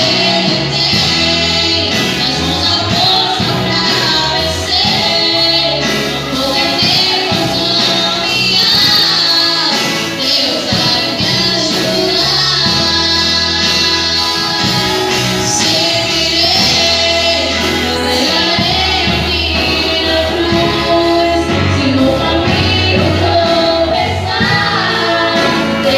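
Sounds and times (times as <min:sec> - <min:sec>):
band playing worship song: 0:00.0 - 0:25.9
people singing: 0:00.0 - 0:25.9
steady bass: 0:00.0 - 0:25.9.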